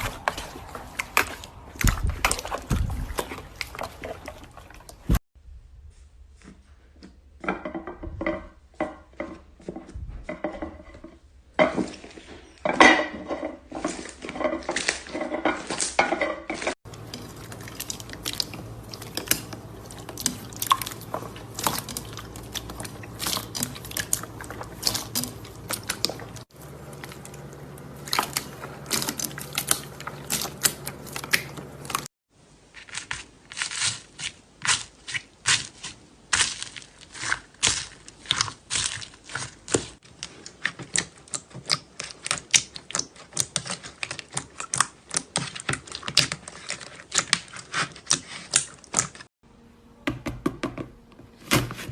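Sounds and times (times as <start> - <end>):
slime squelching and popping: 16.9 - 32.1.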